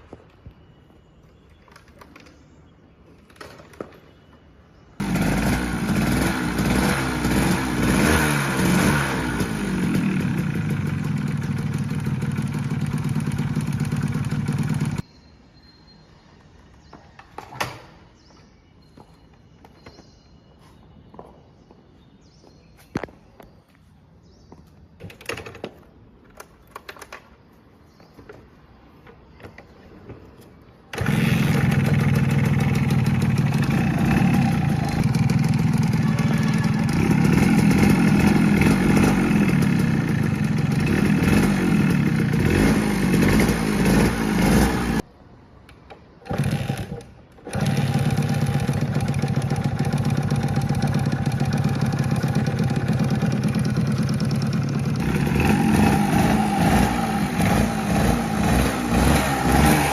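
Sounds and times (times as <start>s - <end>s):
motorcycle engine running: 5.0s - 15.0s, 30.9s - 45.0s, 47.4s - 59.9s.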